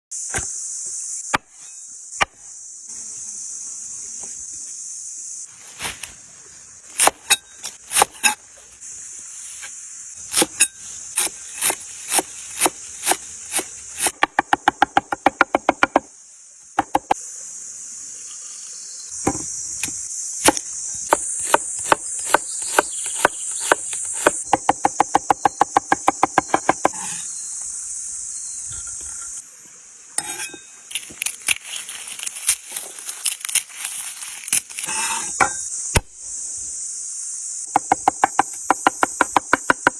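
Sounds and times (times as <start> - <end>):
insect chorus shrilling: 18.0 - 39.9
knife chopping on wooden board: 20.5 - 27.2.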